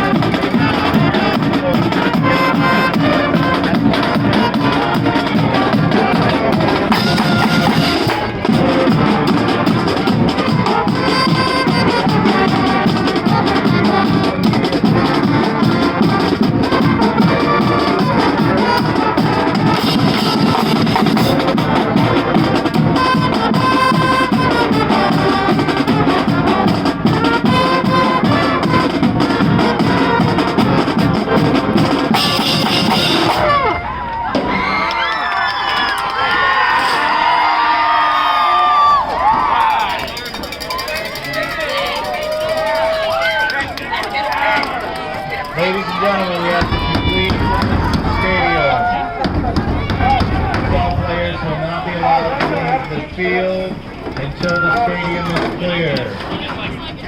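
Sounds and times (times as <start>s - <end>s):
crowd shouting: 0.0s - 57.0s
drumline beat: 0.0s - 57.0s
marching band playing: 0.0s - 57.0s.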